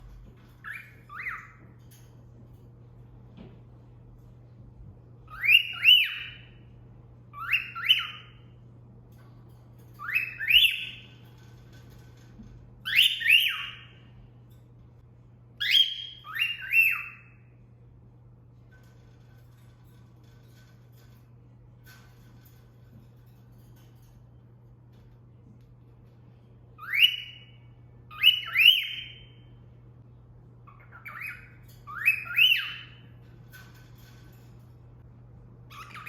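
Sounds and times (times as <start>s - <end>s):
cockatiel wolf whistling: 28.1s - 29.3s.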